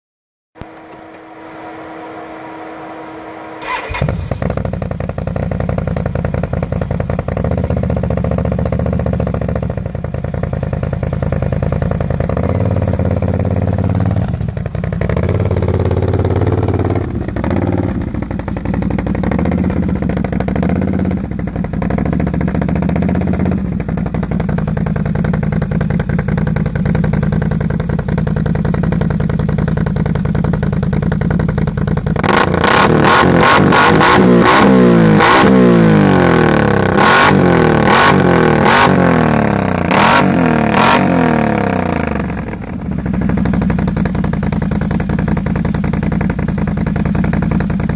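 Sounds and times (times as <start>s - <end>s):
steady whine: 0.6s - 5.1s
atv engine revving: 0.6s - 29.0s, 29.6s - 47.9s.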